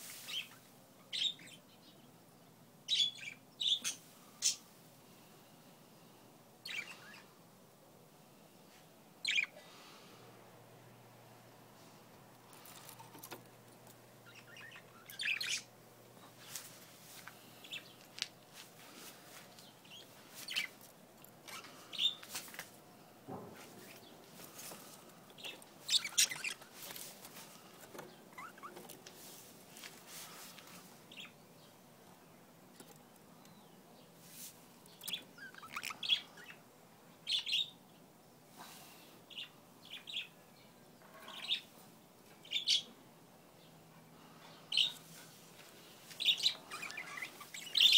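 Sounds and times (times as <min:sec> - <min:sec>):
budgerigars chirping: 0:09.2 - 0:09.6, 0:14.2 - 0:15.7, 0:25.4 - 0:26.7, 0:35.0 - 0:36.6, 0:46.2 - 0:47.9.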